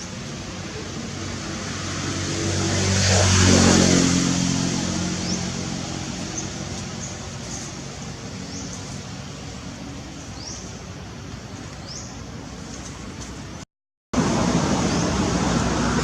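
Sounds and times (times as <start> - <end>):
vehicle engine driving past: 1.4 - 9.4.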